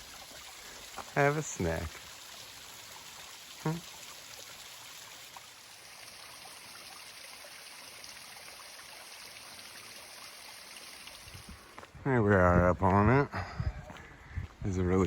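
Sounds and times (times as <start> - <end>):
stream water flowing: 0.0 - 12.0.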